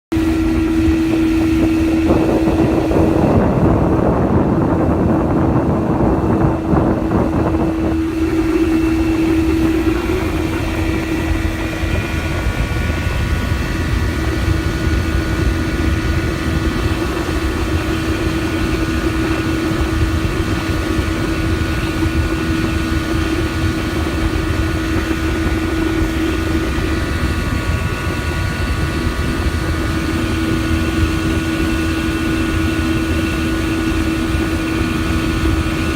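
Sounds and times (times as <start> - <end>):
outboard motor running: 0.1 - 35.9
wind and water rushing: 0.1 - 35.9.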